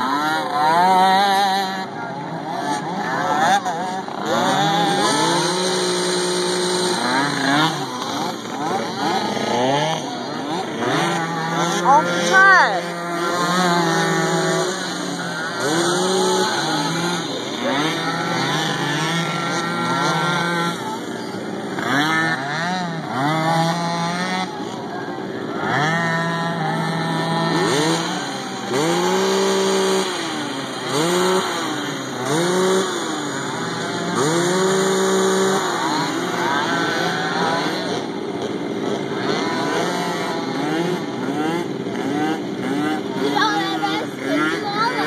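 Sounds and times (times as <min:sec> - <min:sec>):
small quad engines racing: 0:00.0 - 0:45.0.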